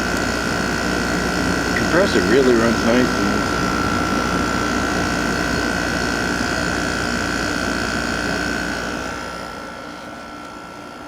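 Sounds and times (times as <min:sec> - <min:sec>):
air conditioner hum: 0:00.0 - 0:11.0.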